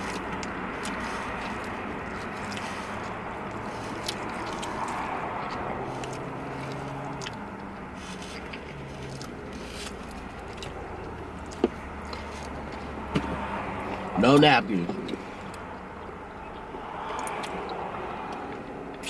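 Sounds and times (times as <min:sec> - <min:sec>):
food and packaging rustling: 0:00.0 - 0:14.2
chewing and biting food: 0:00.0 - 0:19.0.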